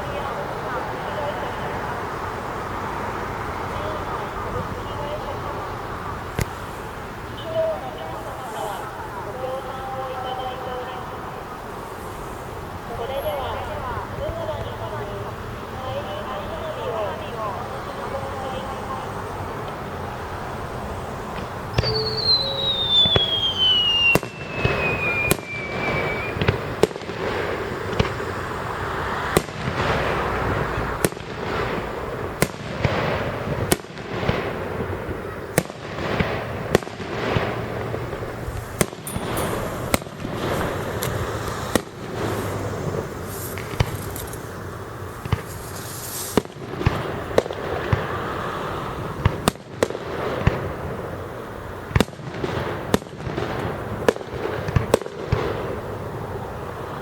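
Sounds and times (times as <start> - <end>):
firework bangs and booms: 0.0 - 57.0
falling firework whistle: 21.4 - 28.6, 38.5 - 44.6.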